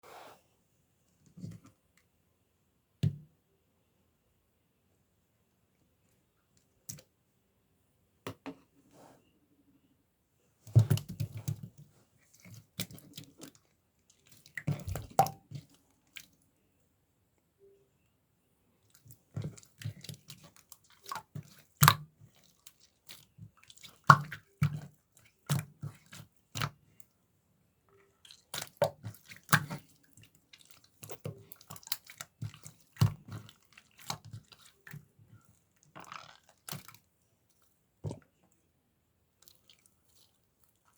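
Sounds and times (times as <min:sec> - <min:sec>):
slime squishing: 0:10.7 - 0:16.4, 0:18.8 - 0:27.0, 0:28.0 - 0:37.1.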